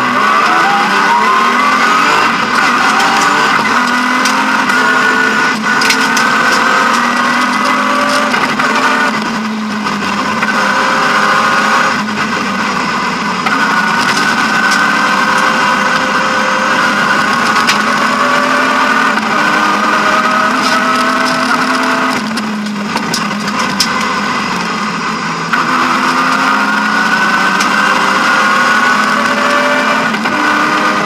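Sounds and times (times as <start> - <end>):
car engine running hard: 0.0 - 31.0
road noise: 0.0 - 31.0.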